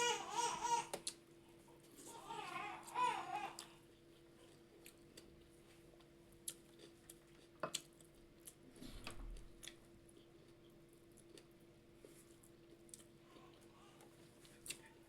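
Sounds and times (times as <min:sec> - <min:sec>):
faint steady hum: 0:00.0 - 0:15.0
person chewing food: 0:02.8 - 0:08.7, 0:09.6 - 0:15.0.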